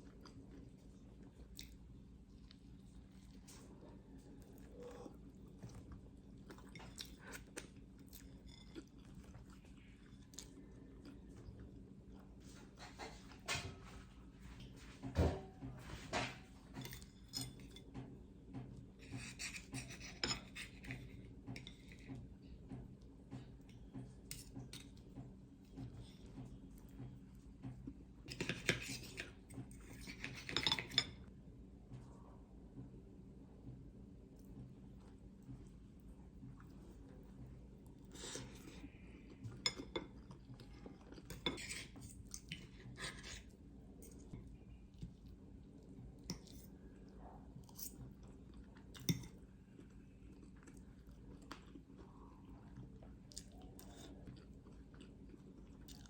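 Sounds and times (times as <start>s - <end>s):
dishes and cutlery clinking: 19.0s - 22.1s, 28.3s - 31.2s.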